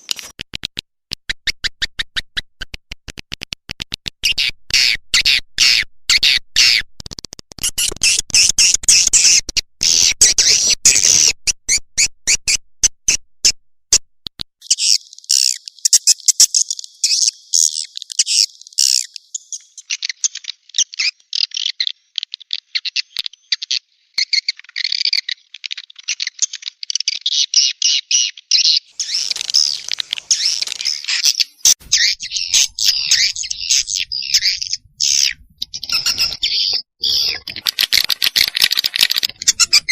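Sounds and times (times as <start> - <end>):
swiftlet calls twittering: 29.0 - 39.9.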